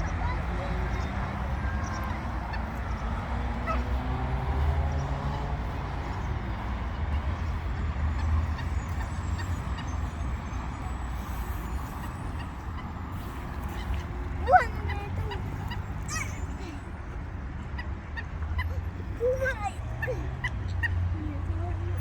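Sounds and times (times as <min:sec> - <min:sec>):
bird squawk: 0:01.7 - 0:05.8.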